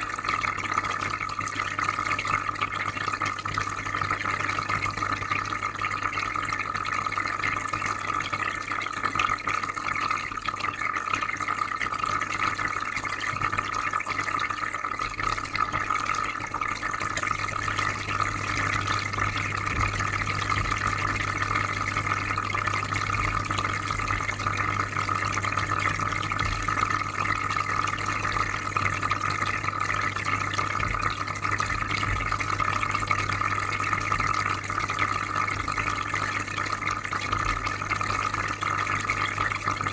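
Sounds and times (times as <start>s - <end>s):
water trickling and bubbling: 0.0s - 39.9s
low constant hum: 15.3s - 39.9s.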